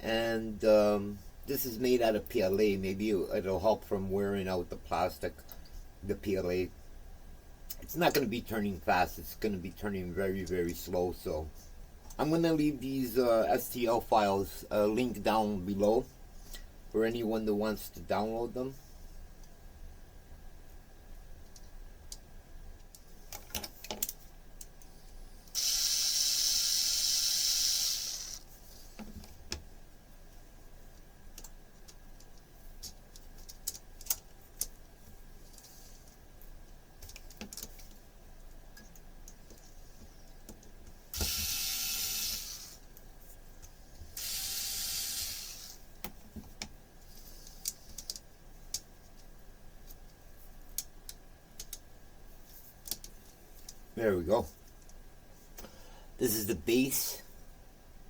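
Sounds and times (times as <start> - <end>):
plastic parts clicking and knocking: 37.0 - 38.0.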